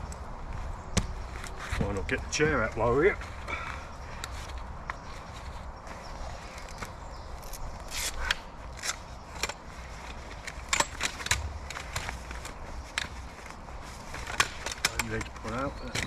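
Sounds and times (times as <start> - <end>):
folding chair frame clicking and rattling: 6.4 - 16.0.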